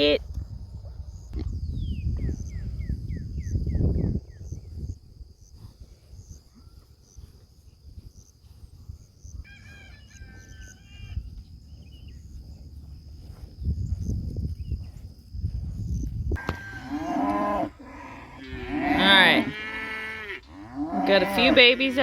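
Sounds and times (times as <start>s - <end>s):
wind rumble on microphone: 0.0s - 19.6s
rooster crowing: 9.4s - 11.2s, 16.4s - 17.7s.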